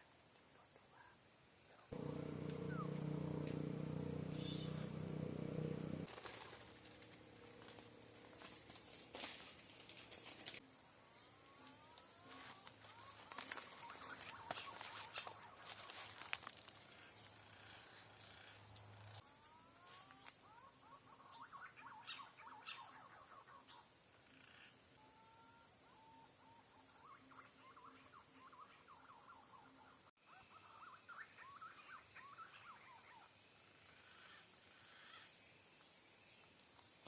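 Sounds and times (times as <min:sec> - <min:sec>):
birds whistling: 0:02.0 - 0:06.1.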